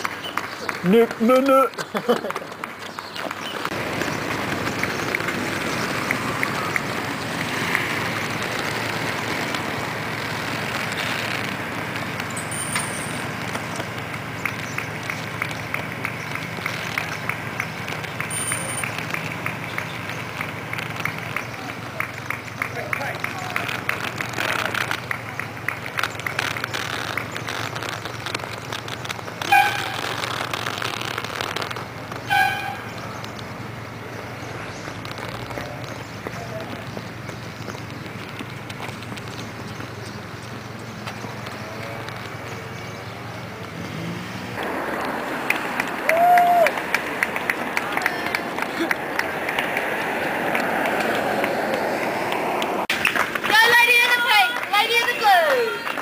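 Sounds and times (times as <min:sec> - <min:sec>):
outdoor noise: 0:00.0 - 0:56.0
running footsteps on road: 0:00.0 - 0:56.0
short horn beeps: 0:29.4 - 0:30.0, 0:32.3 - 0:33.0.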